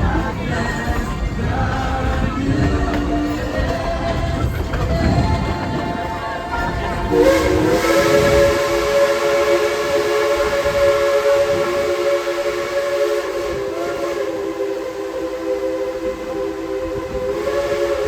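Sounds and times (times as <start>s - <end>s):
steam locomotive chime whistle: 2.5s - 18.0s.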